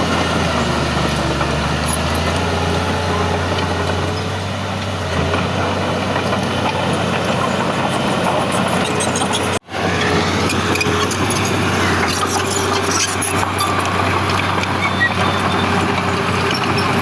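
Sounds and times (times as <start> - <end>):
heavy diesel machinery humming: 0.0 - 17.0.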